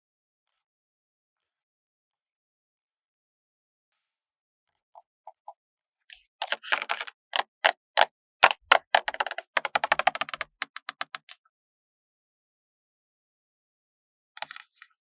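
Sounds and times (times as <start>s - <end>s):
stickers peeling and crackling: 6.4s - 11.2s.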